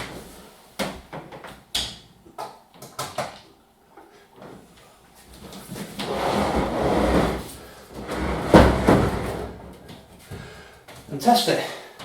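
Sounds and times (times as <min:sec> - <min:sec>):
tumble dryer knocks and clunks: 0:08.1 - 0:10.1.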